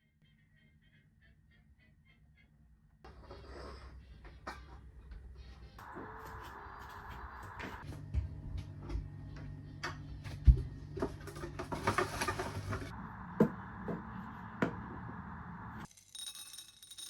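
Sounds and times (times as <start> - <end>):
steady low hum: 4.0 - 12.0.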